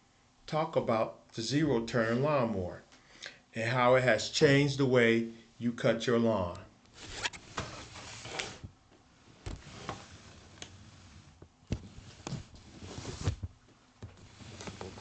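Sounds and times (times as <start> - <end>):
rustling: 6.9 - 15.0.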